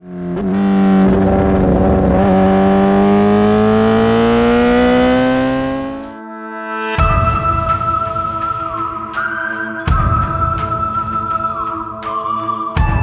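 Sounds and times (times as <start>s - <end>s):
motorcycle revving high: 0.0s - 6.2s.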